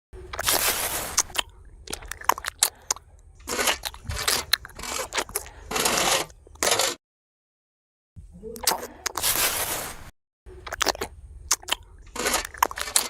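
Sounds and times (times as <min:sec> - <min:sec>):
gritty crunching and scraping: 0:00.3 - 0:07.0, 0:09.1 - 0:10.1, 0:10.7 - 0:13.0.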